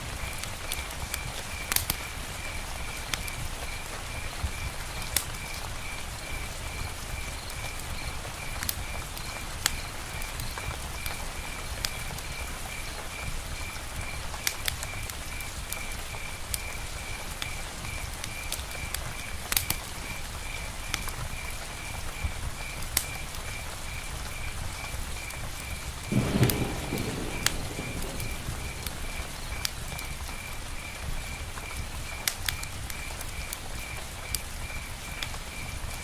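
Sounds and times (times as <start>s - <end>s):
rain on a tent roof: 0.0s - 36.0s
low rumble of thunder: 26.0s - 32.3s
water drips: 26.0s - 33.6s.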